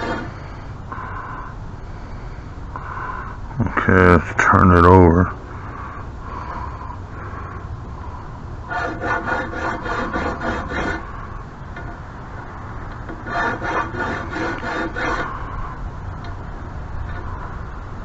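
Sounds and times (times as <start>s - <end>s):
file rasping on metal threads: 0.0s - 0.4s, 8.7s - 11.1s, 13.1s - 15.4s.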